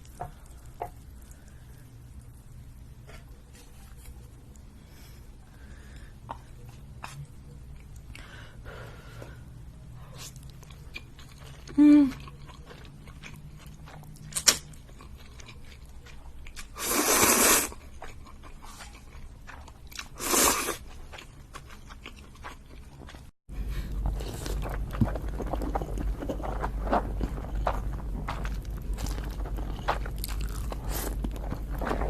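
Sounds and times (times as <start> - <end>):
chewing noodles: 10.2 - 32.0
low hum: 23.5 - 32.0.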